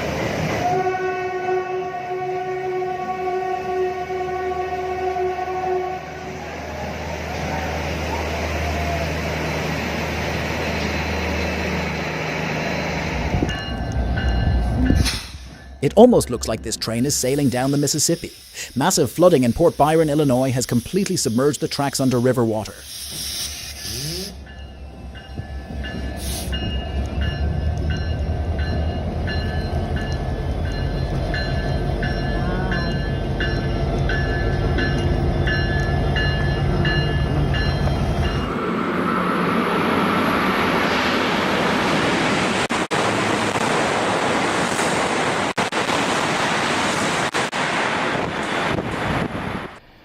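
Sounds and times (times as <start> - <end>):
diesel locomotive rumbling: 0.0 - 50.0
locomotive bell ringing: 9.4 - 18.0, 24.1 - 38.8.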